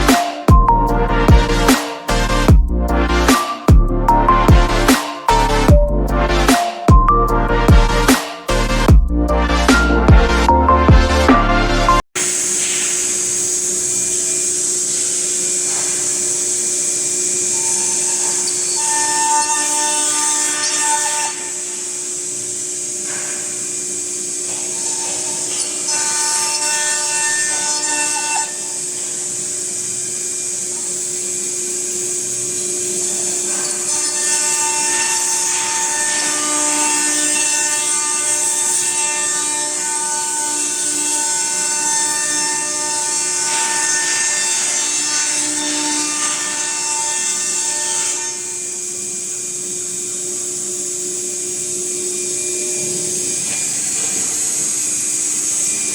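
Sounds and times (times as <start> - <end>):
router spindle whine cutting wood: 14.6 - 55.9.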